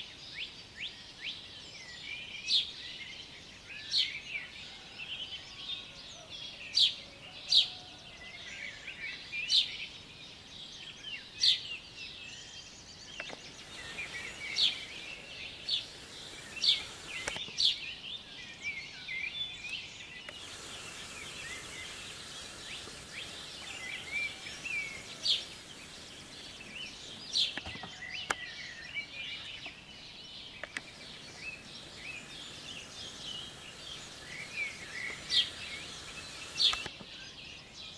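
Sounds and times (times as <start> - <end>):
loud sharp bird calls: 13.1 - 17.8, 19.6 - 37.1
soft bird twitters: 13.1 - 17.8, 19.6 - 29.9, 30.5 - 37.2.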